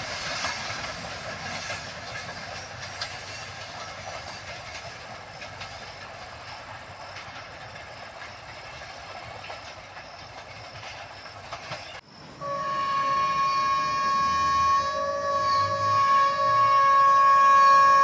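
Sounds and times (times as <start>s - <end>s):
train wheel clicks: 0.0s - 12.0s
train running on rails: 0.0s - 18.0s
locomotive horn blast: 12.4s - 18.0s.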